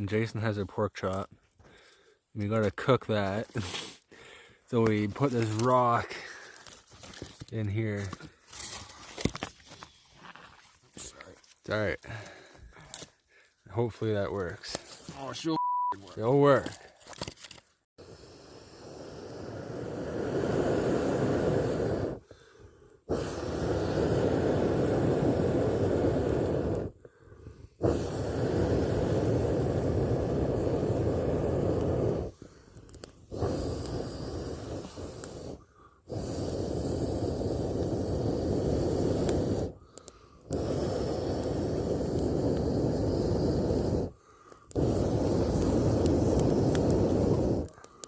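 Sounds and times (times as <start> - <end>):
person blowing into fire: 3.5 - 4.6, 18.0 - 48.0.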